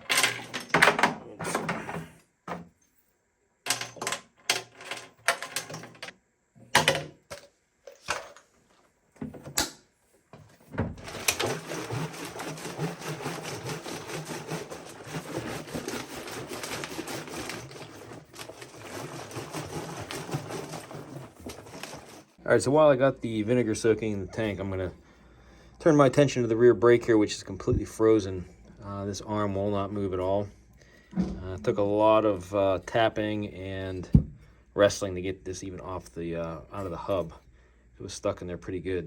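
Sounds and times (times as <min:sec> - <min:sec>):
liquid sloshing in tank: 0:10.7 - 0:22.4.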